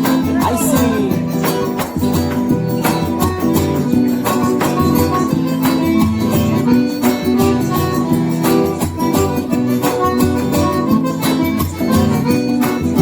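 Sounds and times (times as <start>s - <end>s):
accordion melody: 0.0s - 13.0s
drums and shaken percussion: 0.0s - 13.0s.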